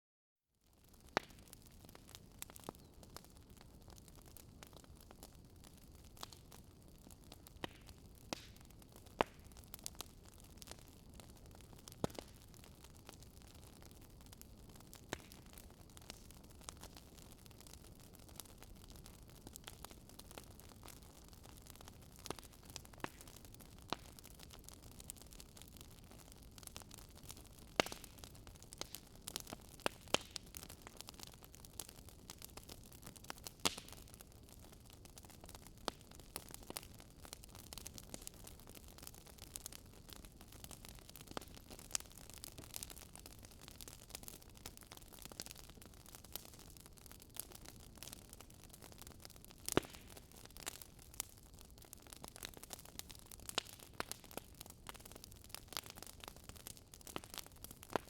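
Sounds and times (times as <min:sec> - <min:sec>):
wood fire crackling: 0:00.7 - 0:58.0.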